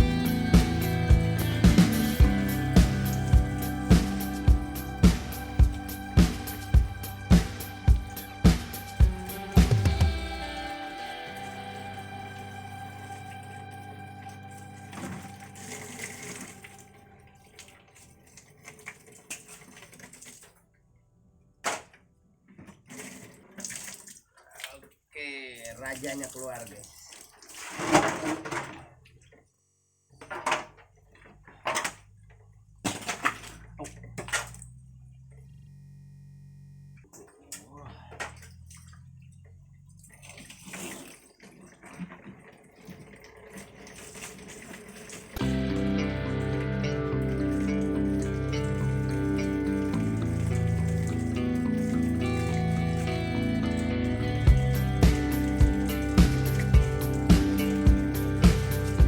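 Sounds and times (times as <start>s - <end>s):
water spraying and splashing: 0.0s - 20.6s, 22.9s - 28.1s, 39.9s - 59.0s.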